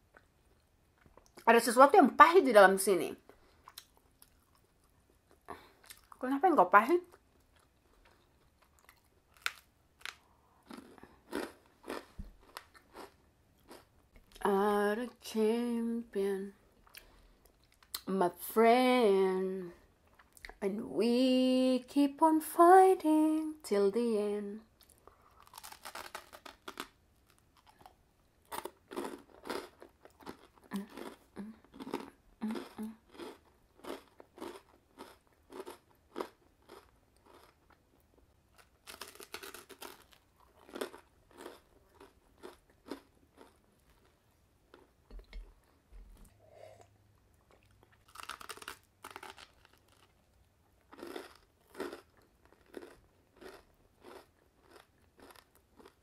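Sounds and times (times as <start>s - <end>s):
crunchy chewing of sandwich: 7.4s - 13.9s, 25.2s - 44.9s, 47.4s - 56.0s.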